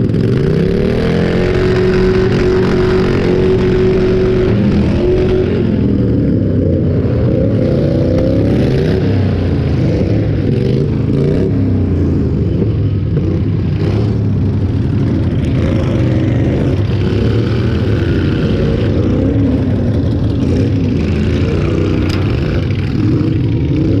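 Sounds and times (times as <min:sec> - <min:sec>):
lawn tractor engines revving: 0:00.0 - 0:24.0.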